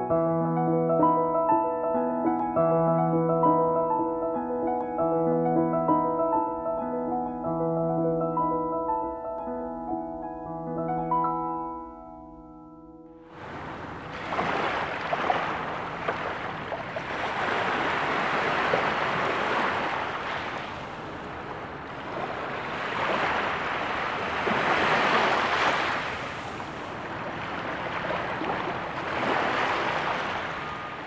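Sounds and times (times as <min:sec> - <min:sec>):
surf washing in: 0:13.3 - 0:31.0.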